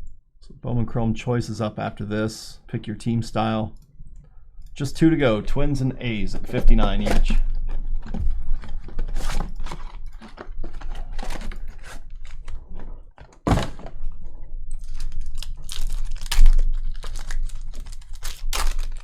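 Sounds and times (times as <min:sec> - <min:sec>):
foil wrappers tearing and crinkling: 0:14.8 - 0:19.0
cards flicking and sliding: 0:18.5 - 0:19.0.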